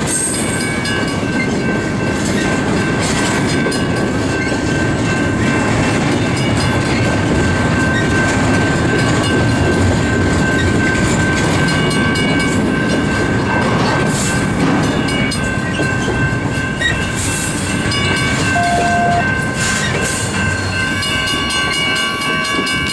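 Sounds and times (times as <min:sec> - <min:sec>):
train wheels clattering on rails: 0:00.0 - 0:18.6, 0:19.2 - 0:22.9
high whine: 0:18.6 - 0:19.4.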